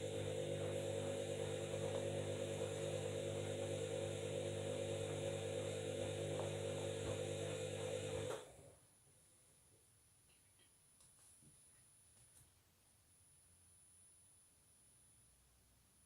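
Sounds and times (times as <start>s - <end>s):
washing machine motor hum: 0.0s - 8.8s.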